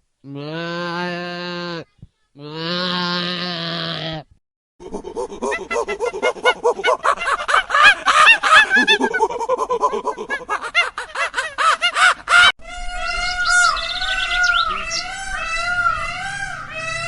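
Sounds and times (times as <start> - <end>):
chicks peeping: 12.7 - 17.0
wavering melodic sound: 12.8 - 17.0.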